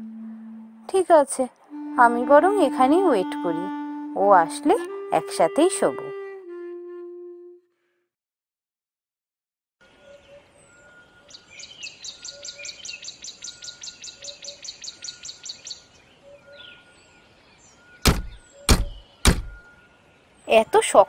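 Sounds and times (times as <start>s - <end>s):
bird chirping rapidly: 18.0s - 19.7s
knocking on a door: 18.1s - 19.6s.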